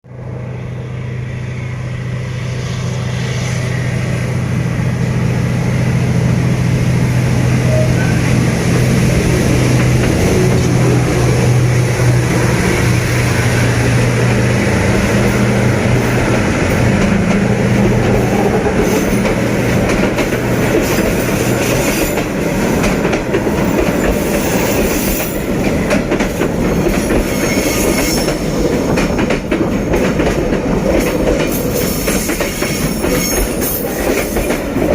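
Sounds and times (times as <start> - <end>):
locomotive engine drone: 0.0 - 26.9
train wheels clattering on rails: 8.7 - 34.9.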